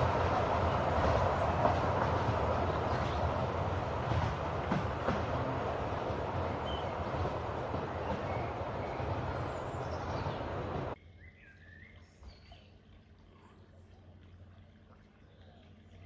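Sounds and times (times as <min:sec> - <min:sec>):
steam train rumbling along track: 0:00.0 - 0:11.0
faint birdsong: 0:00.0 - 0:16.0.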